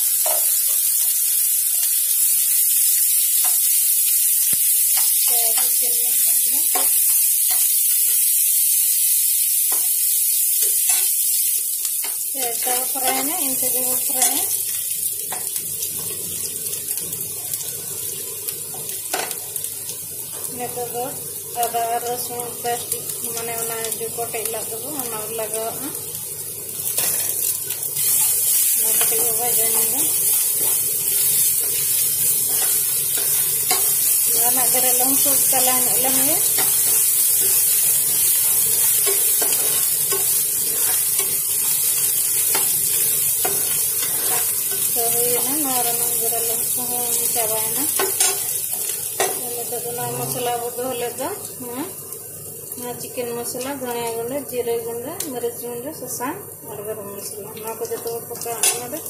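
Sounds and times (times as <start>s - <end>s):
onions sizzling in hot oil: 0.0s - 59.0s
steel spatula stirring: 30.3s - 37.7s, 38.4s - 41.4s, 43.4s - 44.9s.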